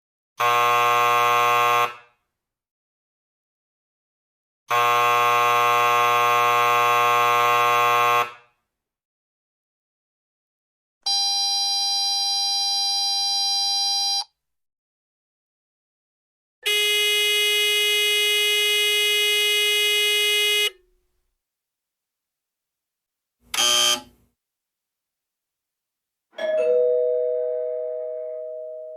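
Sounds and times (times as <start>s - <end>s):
electric doorbell buzzer: 0.4s - 2.0s, 4.7s - 8.4s, 23.5s - 24.2s, 26.4s - 28.9s.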